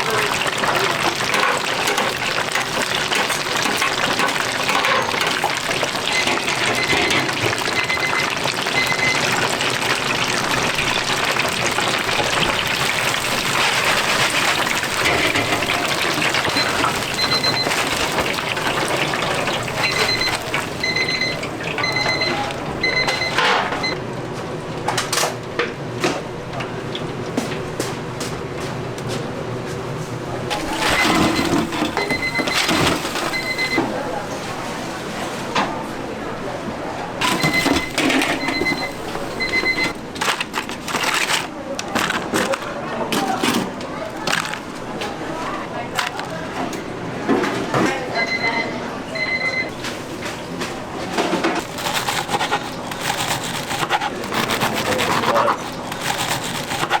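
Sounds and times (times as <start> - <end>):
food sizzling in hot oil: 0.0 - 21.8
electronic timer beeping: 19.8 - 24.0.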